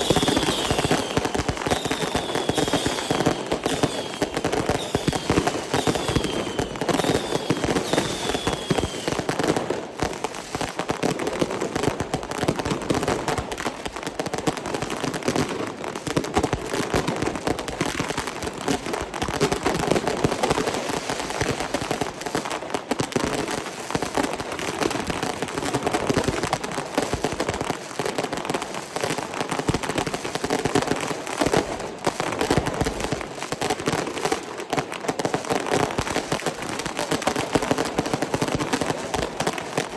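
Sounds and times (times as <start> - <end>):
falling firework whistles: 0.0 - 9.3
fireworks crackling and banging: 0.0 - 39.9.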